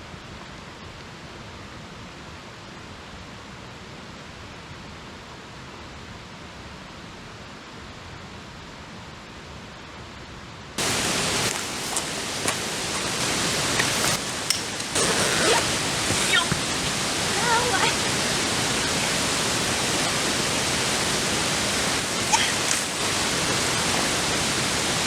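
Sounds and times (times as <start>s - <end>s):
stream water rushing: 10.8s - 25.0s.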